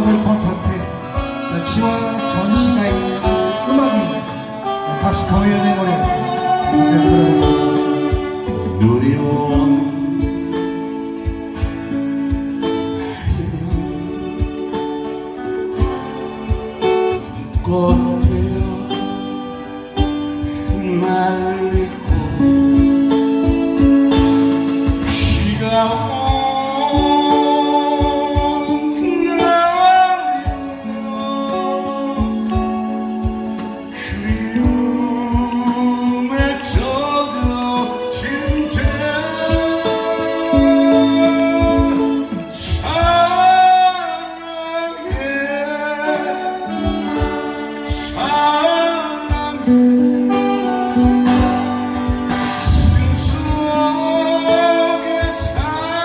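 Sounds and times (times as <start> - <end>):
backing track with drum beat: 0.0 - 56.0
instrumental accompaniment: 0.0 - 56.0
person singing a slow ballad: 0.0 - 56.0
low drum beat: 13.3 - 15.0, 15.7 - 19.2, 49.2 - 56.0.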